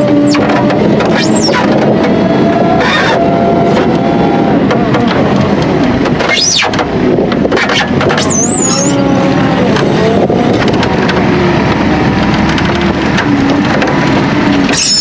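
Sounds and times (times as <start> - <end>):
high squeals: 0.0 - 4.5, 8.2 - 10.1, 14.7 - 15.0
tractor and muck spreader running: 0.0 - 15.0.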